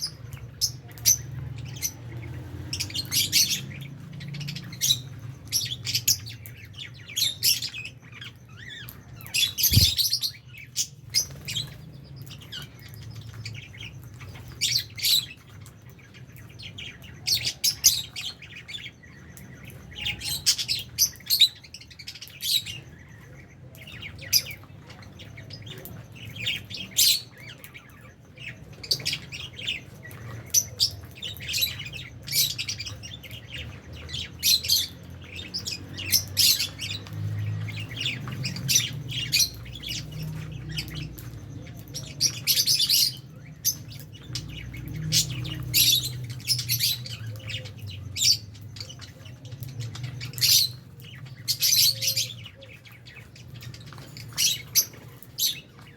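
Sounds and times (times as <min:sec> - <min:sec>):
birds chirping and squawking: 0:00.0 - 0:55.9.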